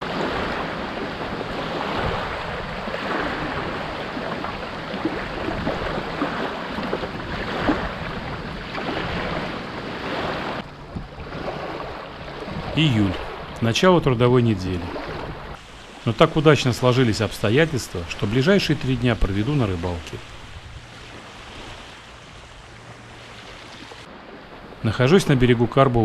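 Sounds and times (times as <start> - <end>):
wind on microphone: 0.0 - 13.6, 14.8 - 16.0, 20.1 - 24.1
river water splashing: 0.0 - 26.0.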